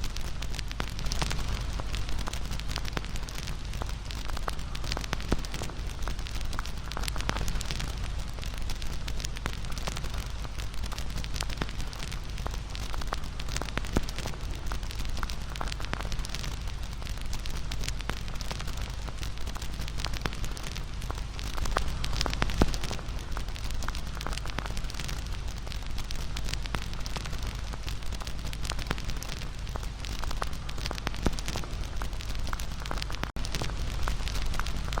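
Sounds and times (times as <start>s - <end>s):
wood bonfire crackling: 0.0s - 35.0s.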